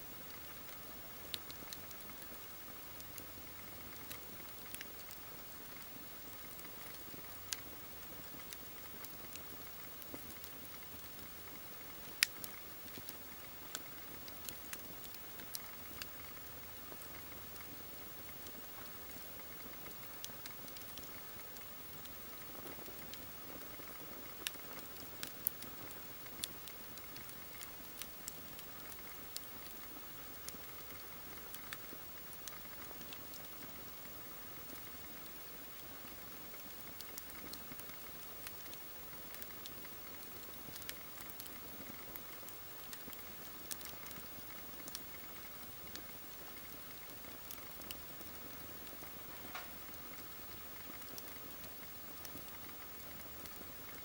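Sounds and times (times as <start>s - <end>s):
campfire crackling: 0.2s - 54.0s
burning logs snapping and popping: 23.8s - 33.6s, 34.7s - 54.0s.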